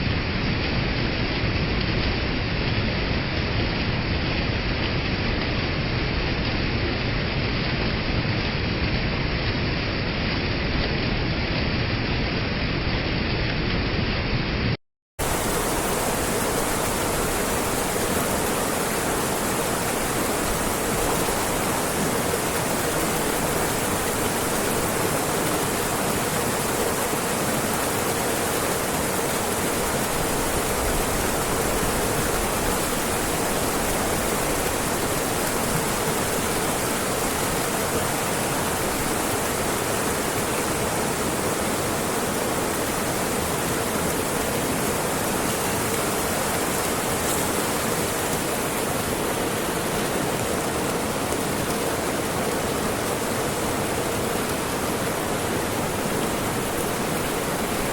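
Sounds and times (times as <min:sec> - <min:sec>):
waterfall rushing: 0:15.2 - 0:57.9.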